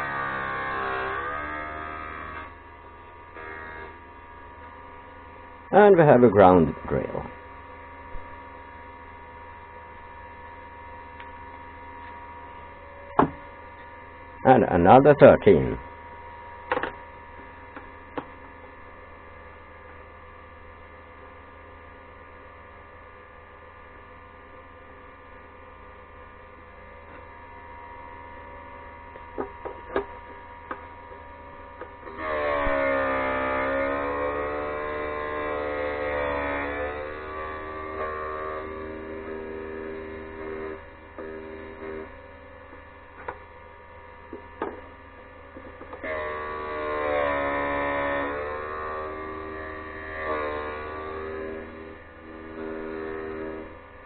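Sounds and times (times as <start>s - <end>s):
electric hum: 0.0s - 54.0s.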